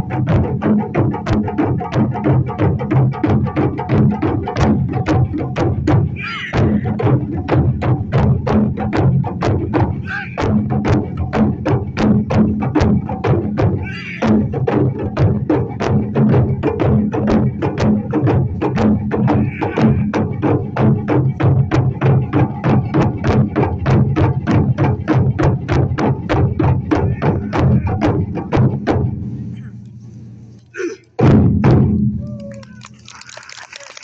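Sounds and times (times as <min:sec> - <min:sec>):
deep drum beats: 0:00.0 - 0:30.0, 0:31.1 - 0:33.2
voice calling out: 0:06.2 - 0:06.9, 0:10.0 - 0:10.4, 0:13.8 - 0:14.3, 0:19.3 - 0:20.2, 0:32.2 - 0:33.8.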